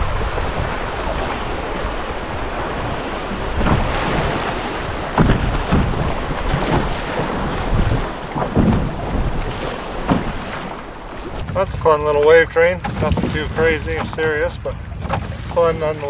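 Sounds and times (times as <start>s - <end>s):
rushing river water: 0.0s - 11.6s
water splashing against canoe: 0.0s - 16.0s
wind buffeting microphone: 0.0s - 16.0s.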